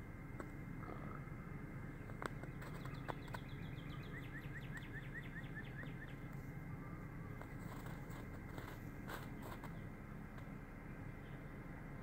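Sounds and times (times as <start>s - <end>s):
steady low rumble: 0.0s - 12.0s
bird chirping: 0.8s - 7.4s.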